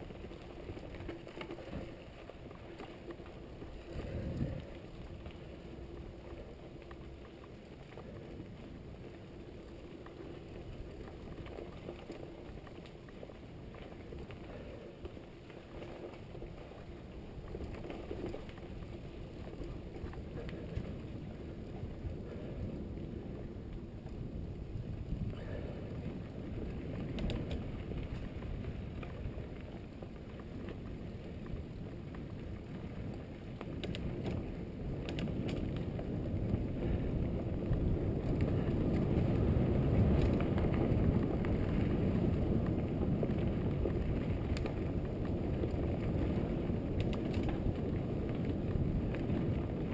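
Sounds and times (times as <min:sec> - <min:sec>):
wind on microphone: 0:00.0 - 0:06.9, 0:17.2 - 0:49.9
bike tyres rumbling: 0:00.0 - 0:49.9.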